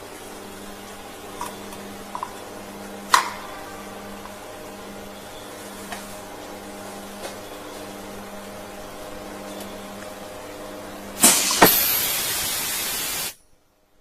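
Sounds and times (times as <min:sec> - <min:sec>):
machine humming: 0:00.0 - 0:13.3
loud sharp clack: 0:11.2 - 0:12.3.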